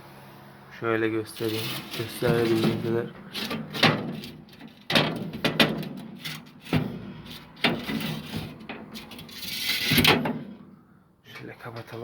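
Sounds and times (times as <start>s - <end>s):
sharp knocks and scrapes: 1.3s - 10.8s.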